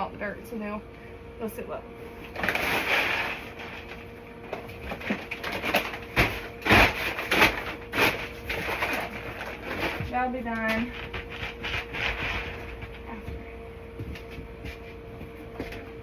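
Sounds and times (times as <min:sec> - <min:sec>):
knocks and thumps of bag and bucket: 0:02.2 - 0:14.5.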